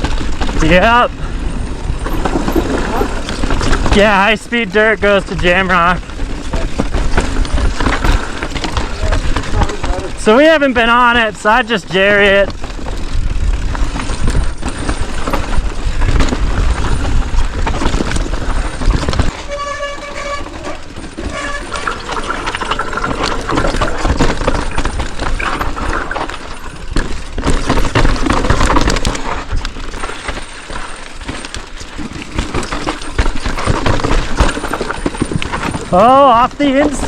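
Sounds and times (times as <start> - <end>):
tyre and rattle noise: 0.0 - 37.0
wind buffeting a camera: 12.5 - 19.6.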